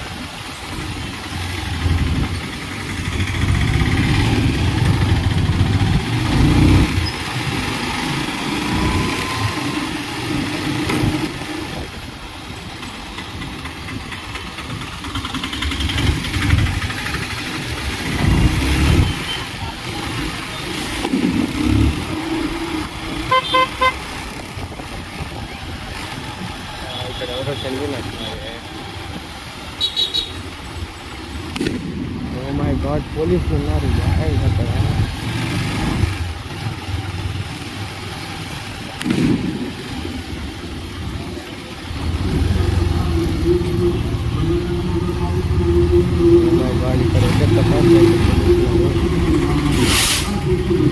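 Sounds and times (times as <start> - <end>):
motorcycle engine and road rumble: 0.0 - 50.9
motorcycle engine running: 0.8 - 8.7, 12.9 - 27.0
vehicle horn short toots: 23.3 - 24.0, 29.8 - 30.4.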